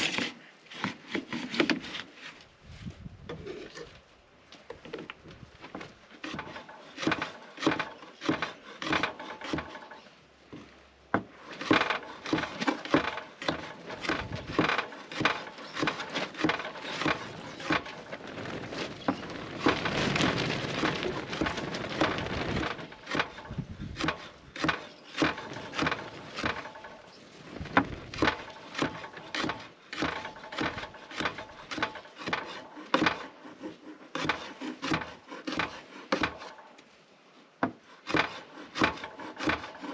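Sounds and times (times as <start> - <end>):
scraping wood: 0.0 - 2.6, 3.2 - 4.1, 4.7 - 36.8, 37.6 - 39.9
wood cracking and knocking: 4.6 - 33.3, 34.2 - 36.8, 37.6 - 39.9
steady rasping: 6.2 - 10.0, 11.4 - 27.1, 27.7 - 36.8, 37.7 - 39.9.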